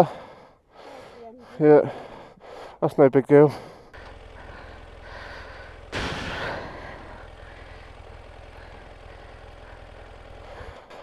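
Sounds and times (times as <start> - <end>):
motorcycle engine idling: 3.5 - 11.0.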